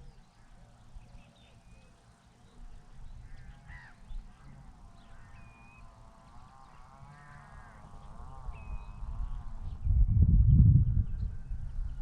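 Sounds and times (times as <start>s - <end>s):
birds calling: 0.0s - 10.0s
low rumble: 9.8s - 12.0s.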